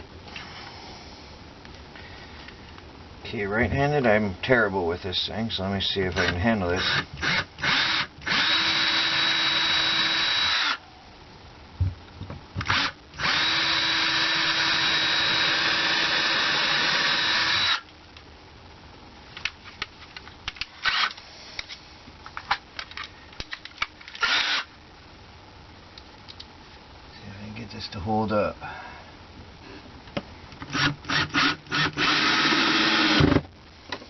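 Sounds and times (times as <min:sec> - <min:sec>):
power drill drilling into wood: 0:06.2 - 0:10.8, 0:12.6 - 0:17.8, 0:24.2 - 0:24.7, 0:30.7 - 0:33.4
clicks: 0:25.9 - 0:26.5.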